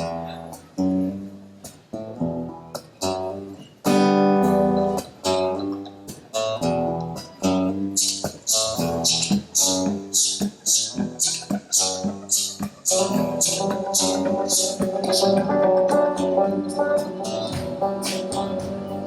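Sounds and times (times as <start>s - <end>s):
strummed guitar chords: 0.0s - 19.0s
live band music: 3.9s - 19.0s.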